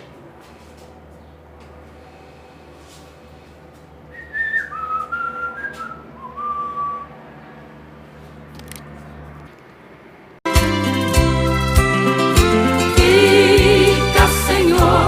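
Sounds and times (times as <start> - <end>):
person whistling a tune: 4.1 - 7.1.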